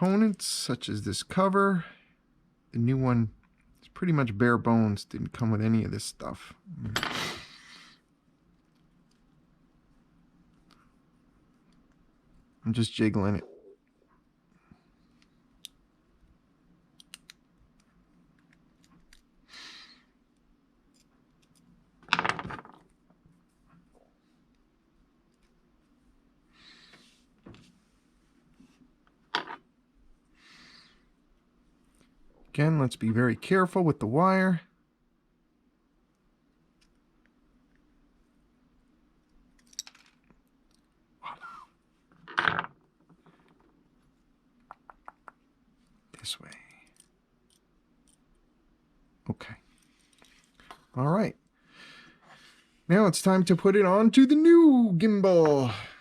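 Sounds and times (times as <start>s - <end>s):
small parts clicking and handling: 16.9s - 19.3s, 20.3s - 23.0s, 39.2s - 40.9s, 46.2s - 48.4s, 49.7s - 50.9s
small tools clicking and clinking: 39.6s - 40.3s.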